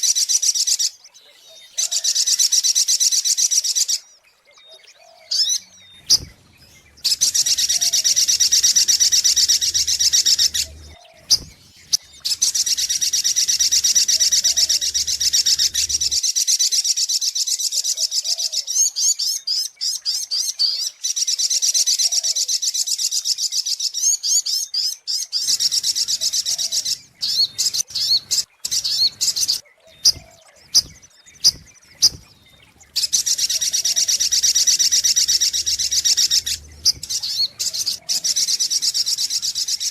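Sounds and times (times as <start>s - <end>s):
short bird chirps: 4.7s - 16.2s, 25.4s - 39.9s.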